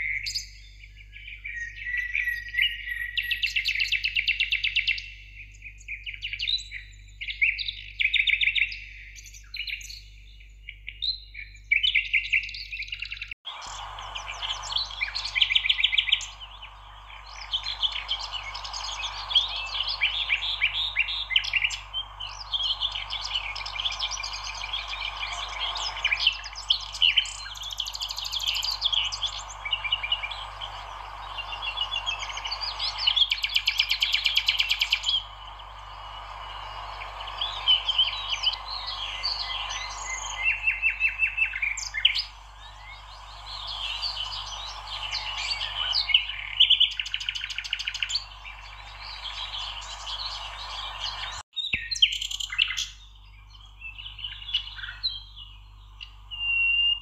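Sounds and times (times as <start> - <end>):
songbirds chirping and trilling: 0.0 - 57.0
steady hiss: 13.5 - 51.4.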